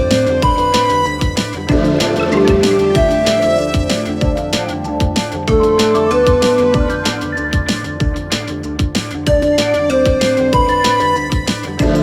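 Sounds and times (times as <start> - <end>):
held synth notes: 0.6 - 8.9.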